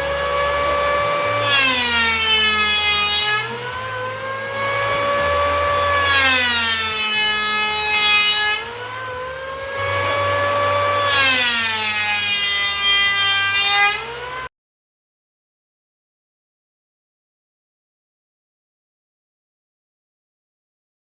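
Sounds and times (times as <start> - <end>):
power tool cutting wood: 0.0 - 14.5.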